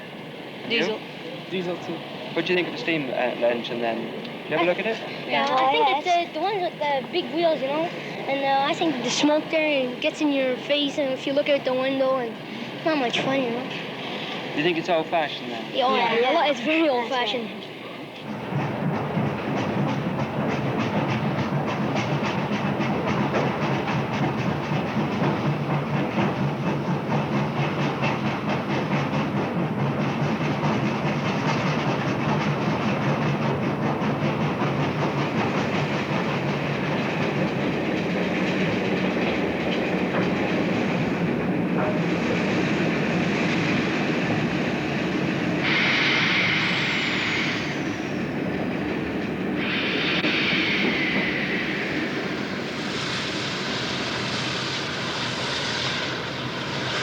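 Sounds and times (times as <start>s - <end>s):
train clattering on rails: 0.0s - 57.0s
short burst of hissing: 45.6s - 48.0s, 49.6s - 56.1s.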